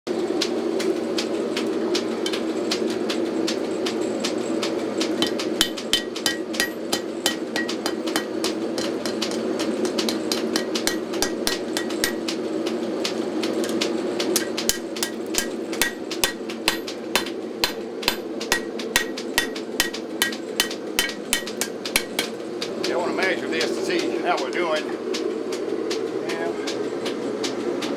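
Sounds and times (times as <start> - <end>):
gas forge roaring: 0.1 - 27.9
hammer ringing on steel: 5.2 - 8.4, 14.7 - 22.2.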